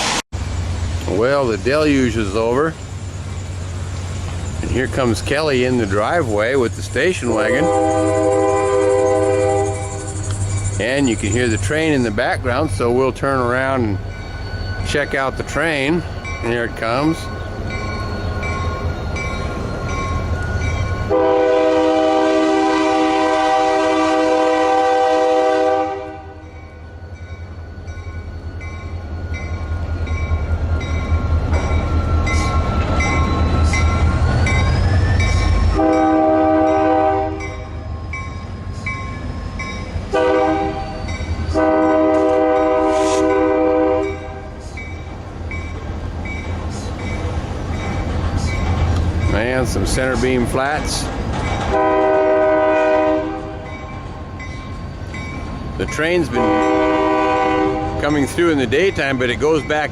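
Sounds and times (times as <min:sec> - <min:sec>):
locomotive engine rumble: 0:00.0 - 0:59.9
locomotive air horn blasts: 0:07.5 - 0:10.1, 0:21.1 - 0:26.5, 0:35.7 - 0:37.7, 0:40.1 - 0:44.5, 0:51.7 - 0:53.7, 0:56.4 - 0:58.0.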